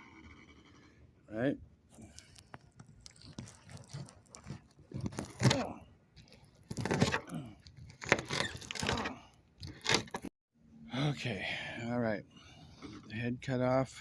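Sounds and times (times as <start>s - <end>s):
knife crunching through fish bone: 2.0s - 10.2s.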